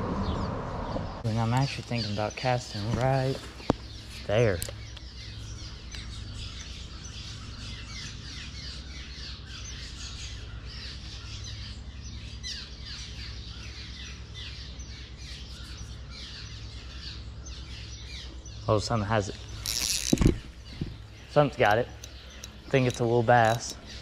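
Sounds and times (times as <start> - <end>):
low rumble: 0.0 - 7.5
many birds chirping: 0.0 - 24.0.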